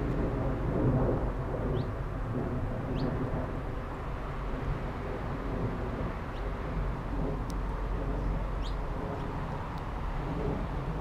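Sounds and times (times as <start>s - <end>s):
low outdoor rumble: 0.0s - 11.0s
bird chirps: 8.6s - 8.8s.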